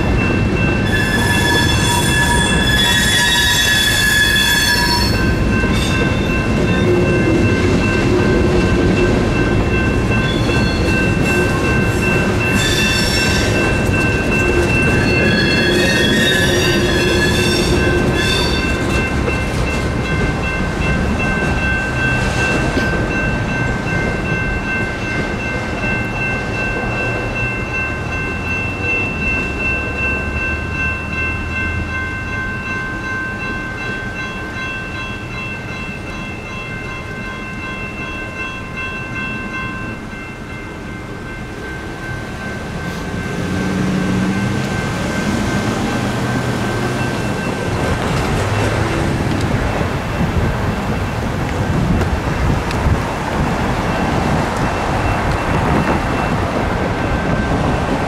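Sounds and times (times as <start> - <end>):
crossing bell ringing: 0.0 - 58.0
freight train rumbling on rails: 0.0 - 58.0
train wheels squealing: 0.8 - 7.1, 10.2 - 19.1.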